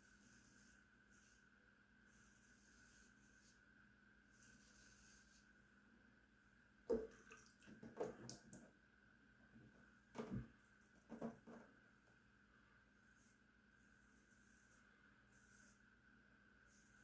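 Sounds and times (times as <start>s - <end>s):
razor knocking in sink: 6.9s - 7.2s
water splashing: 6.9s - 8.5s.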